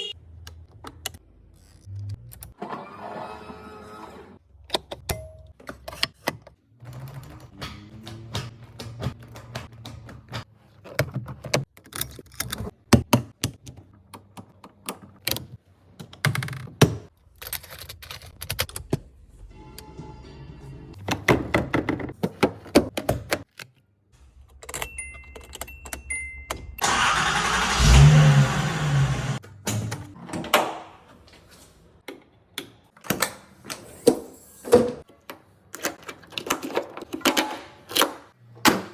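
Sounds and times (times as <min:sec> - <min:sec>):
car engine starting: 0:26.8 - 0:29.4.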